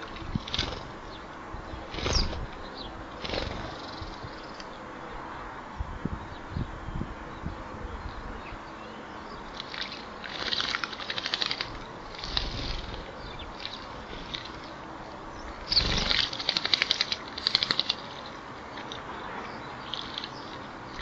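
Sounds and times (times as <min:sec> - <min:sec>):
bird wings splashing water: 0:09.6 - 0:14.7, 0:15.7 - 0:19.0.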